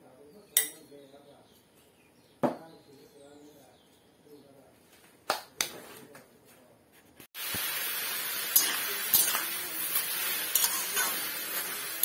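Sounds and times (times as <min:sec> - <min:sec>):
food sizzling in a wok: 0:07.4 - 0:12.0
spatula scraping a pan: 0:08.6 - 0:11.9.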